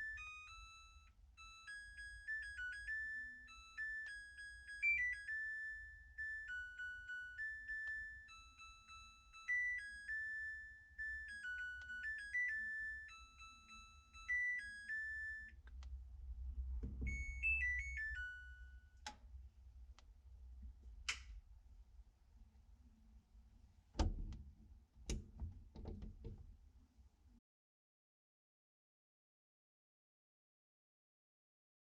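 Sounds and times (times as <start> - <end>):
washing machine beep melody: 0.0 - 15.6, 16.9 - 19.0.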